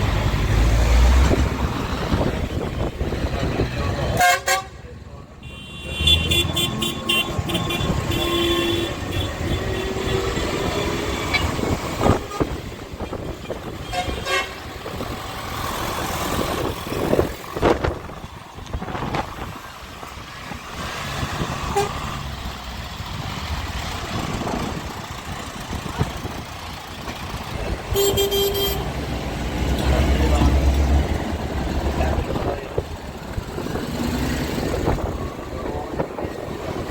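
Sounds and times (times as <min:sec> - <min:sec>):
vehicles running along road: 0:00.0 - 0:36.9.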